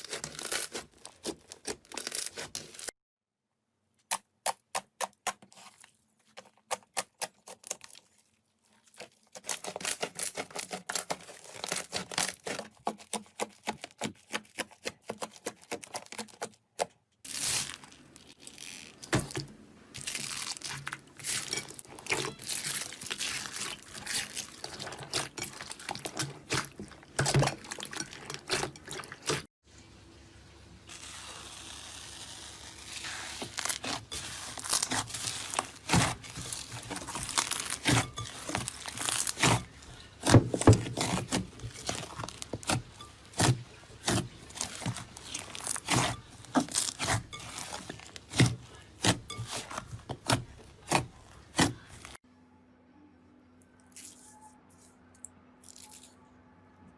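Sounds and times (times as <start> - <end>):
slime squishing: 0.0 - 2.9, 4.2 - 29.5, 32.8 - 52.2
slime popping and crackling: 33.0 - 52.2.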